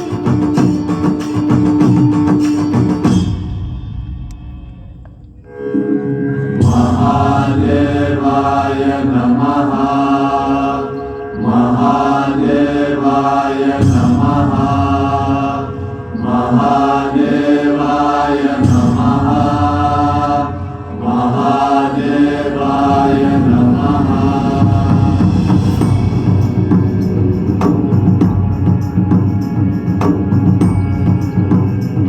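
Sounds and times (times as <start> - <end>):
musical backing: 0.0 - 32.0
person chanting: 5.7 - 29.9.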